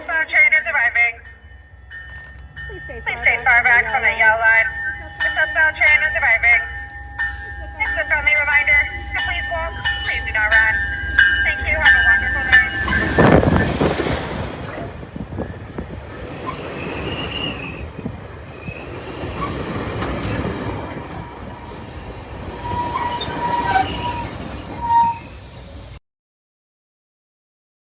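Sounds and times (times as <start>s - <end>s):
train wheels rumbling: 0.0s - 26.0s
brake and wheel squeal: 16.2s - 17.9s, 18.6s - 26.0s.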